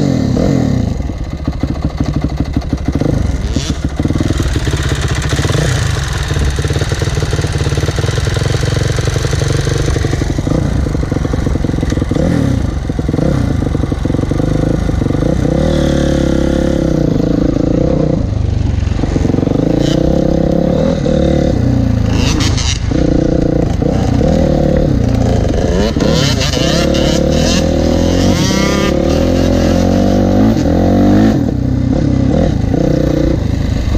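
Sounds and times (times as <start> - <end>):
motocross bike engine revving: 0.0 - 33.9.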